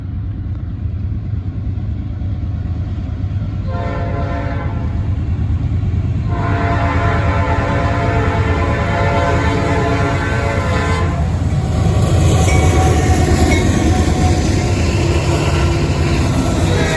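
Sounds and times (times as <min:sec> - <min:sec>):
train rumble: 0:00.0 - 0:16.9
locomotive horn blasts: 0:03.7 - 0:05.0, 0:06.3 - 0:11.5, 0:12.6 - 0:16.9.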